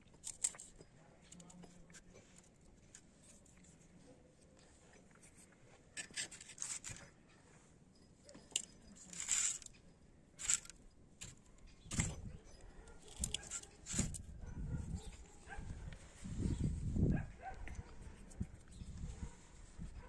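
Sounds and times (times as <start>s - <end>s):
objects scraping and clicking: 0.0s - 3.8s, 4.9s - 7.1s, 8.3s - 16.7s.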